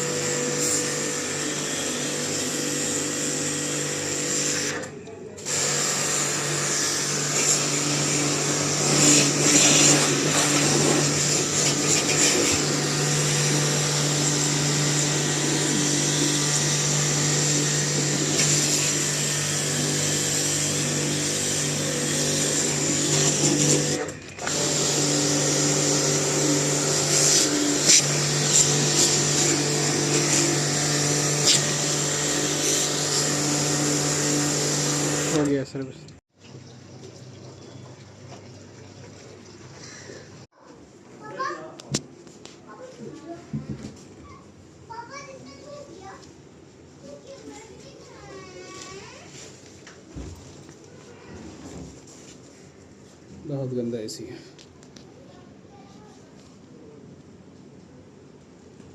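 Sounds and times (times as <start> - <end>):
pressure washer motor humming: 0.0 - 35.9.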